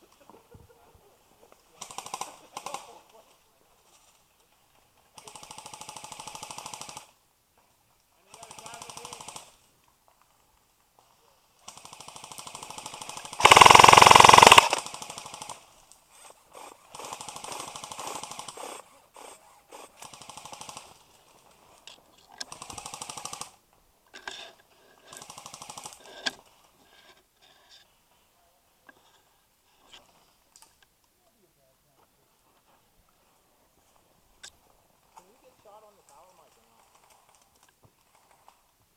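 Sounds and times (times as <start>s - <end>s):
airsoft guns firing bursts: 12.0s - 15.6s
airsoft gun single shots: 13.4s - 14.8s.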